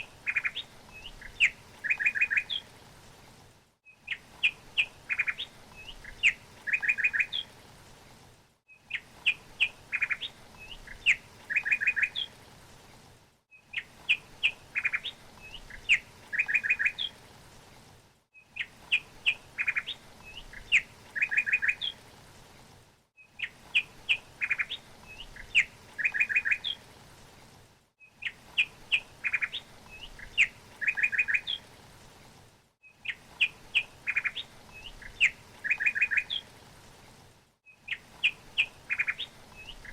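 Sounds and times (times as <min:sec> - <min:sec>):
songbird chirping and trilling: 0:00.2 - 0:02.7, 0:03.9 - 0:07.5, 0:08.7 - 0:12.4, 0:13.5 - 0:17.2, 0:18.4 - 0:22.0, 0:23.2 - 0:26.8, 0:28.1 - 0:31.6, 0:32.9 - 0:36.5, 0:37.7 - 0:39.9.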